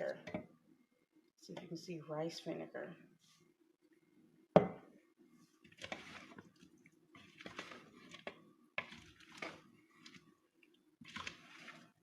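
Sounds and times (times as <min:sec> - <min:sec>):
wet squishing of stirred salad: 0:05.6 - 0:12.0.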